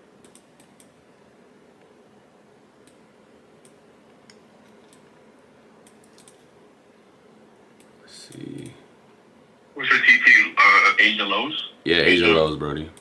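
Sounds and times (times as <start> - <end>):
computer mouse clicks: 0.2 - 1.0, 2.8 - 3.0, 3.6 - 5.2, 5.8 - 6.5
room hiss: 9.6 - 12.6.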